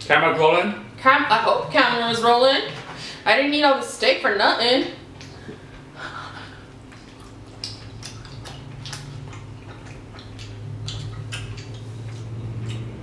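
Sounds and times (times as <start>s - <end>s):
low steady hum: 0.0s - 13.0s
people chewing: 5.0s - 13.0s
wet mouth clicks and smacks: 6.7s - 13.0s.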